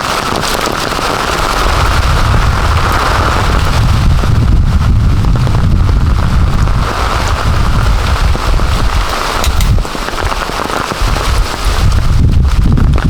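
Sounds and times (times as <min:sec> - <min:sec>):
heavy rain pouring: 0:00.0 - 0:13.0
low rumble: 0:01.3 - 0:09.9.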